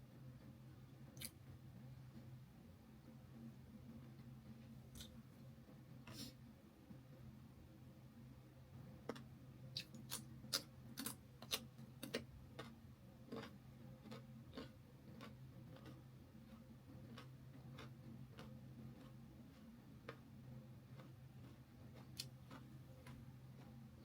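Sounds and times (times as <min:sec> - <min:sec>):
low steady hum: 0:00.0 - 0:24.0
person chewing: 0:09.1 - 0:19.2, 0:20.9 - 0:23.8.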